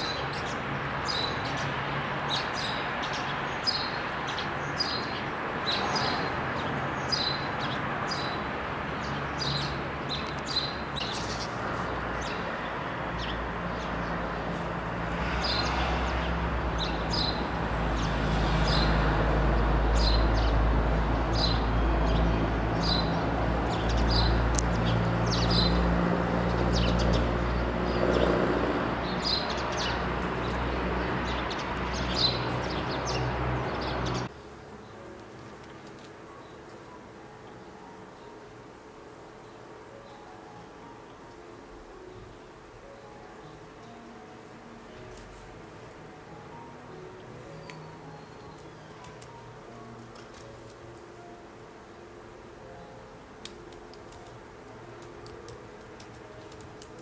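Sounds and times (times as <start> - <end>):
small birds chirping: 0.0 - 14.2.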